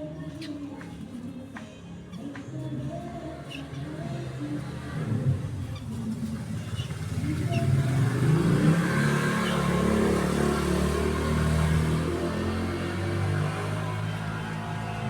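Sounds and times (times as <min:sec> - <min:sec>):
vehicle engine running: 0:03.9 - 0:15.0.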